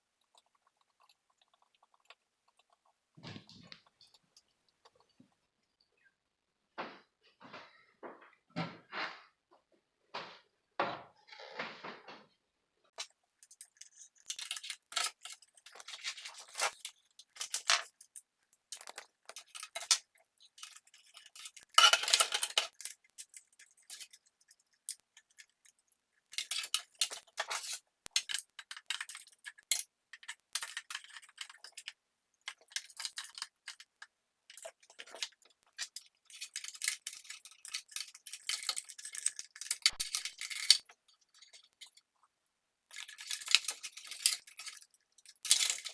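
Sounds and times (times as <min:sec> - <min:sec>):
small parts clicking and rattling: 0:13.0 - 0:45.9.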